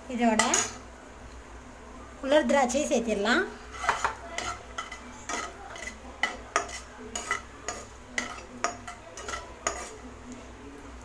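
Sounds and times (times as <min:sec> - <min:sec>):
nuts frying in a pan: 0:00.0 - 0:11.0
spoon clinking against pan: 0:03.8 - 0:10.0.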